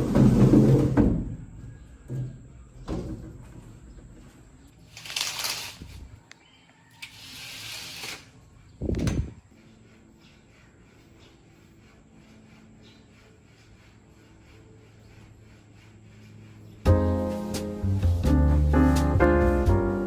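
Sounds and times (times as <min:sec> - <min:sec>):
hiss: 0:07.0 - 0:08.3.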